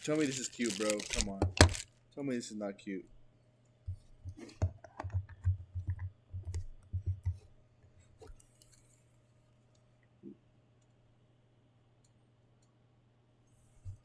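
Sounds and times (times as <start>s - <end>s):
plastic clicks and knocks: 0.0s - 1.8s.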